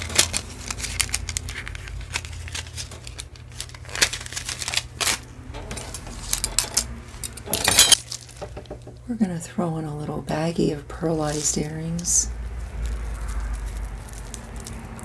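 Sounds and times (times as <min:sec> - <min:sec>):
plastic packaging crinkling: 0:00.0 - 0:08.8, 0:11.0 - 0:15.0
jewelry clicking and rattling: 0:05.6 - 0:08.1.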